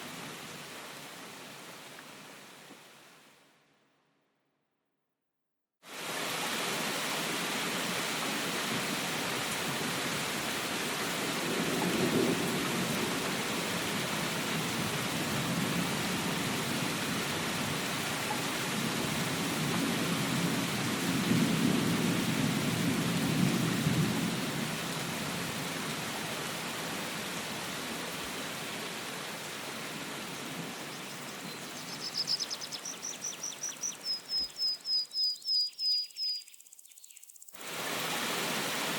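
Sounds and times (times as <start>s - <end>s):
steady rain falling: 0.0s - 3.6s, 5.9s - 35.0s, 37.6s - 38.9s
low rolls of thunder: 11.4s - 14.0s, 18.7s - 25.3s.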